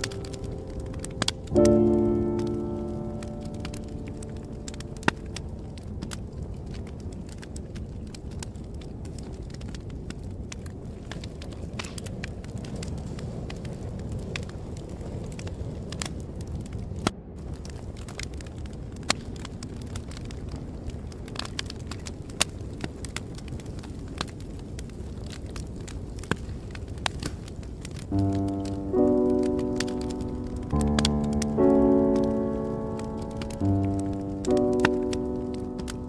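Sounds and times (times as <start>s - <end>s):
soft piano music: 0.0s - 7.4s, 28.0s - 36.0s
wood fire crackling and popping: 0.0s - 36.0s.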